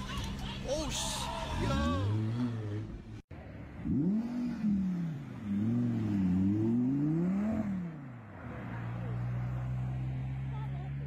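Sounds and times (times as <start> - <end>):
sports car engine revving: 3.8 - 10.1.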